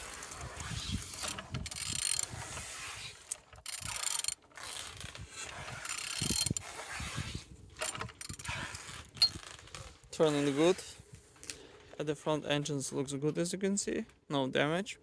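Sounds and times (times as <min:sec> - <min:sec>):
small mechanical clicks: 0:00.0 - 0:06.9, 0:07.8 - 0:09.9
engine turned over by hand: 0:00.0 - 0:10.1.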